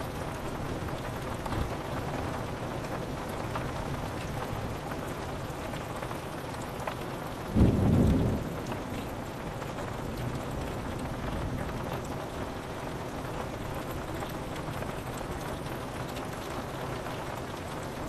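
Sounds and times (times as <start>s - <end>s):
rain pattering on a window: 0.0s - 18.0s
thunder clap: 7.6s - 8.9s.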